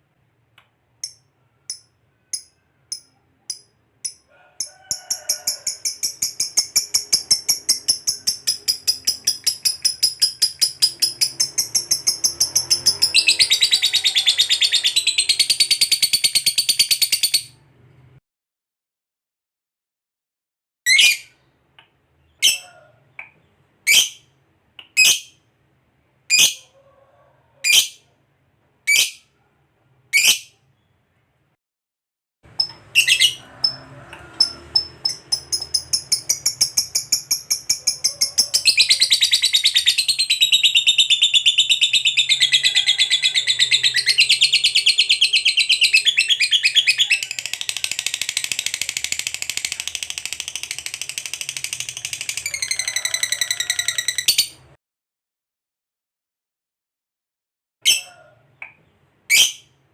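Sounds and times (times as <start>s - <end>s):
lovebird rattling trill: 5.0s - 13.8s, 34.4s - 54.5s
lovebird chirps: 5.0s - 17.6s, 32.6s - 54.6s, 57.9s - 59.7s.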